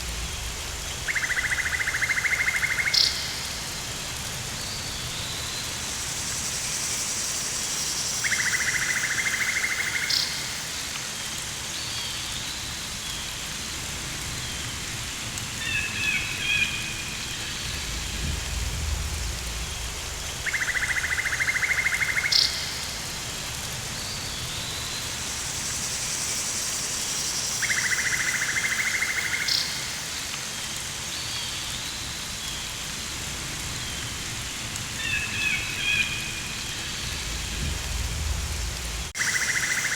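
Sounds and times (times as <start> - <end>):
steady hiss: 0.0 - 39.9
low rumble: 17.6 - 20.4, 36.9 - 39.2.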